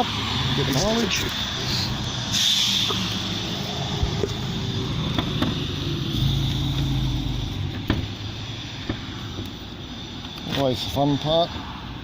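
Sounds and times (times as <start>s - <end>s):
engine hum: 0.0s - 12.0s.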